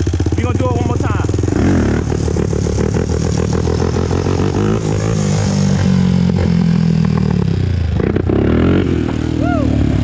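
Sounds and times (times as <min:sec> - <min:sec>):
quad engine under throttle: 0:00.0 - 0:10.0.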